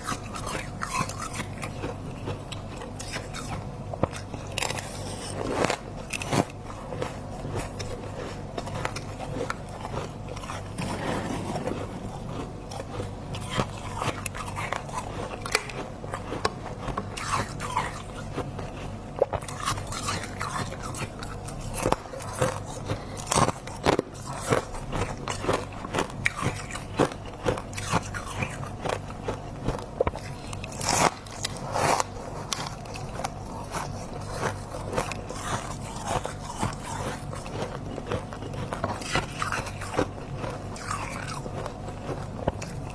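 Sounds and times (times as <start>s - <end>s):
biting and crunching frost: 0.0s - 42.9s
steady low hum: 0.0s - 42.9s
scraping: 10.6s - 13.8s.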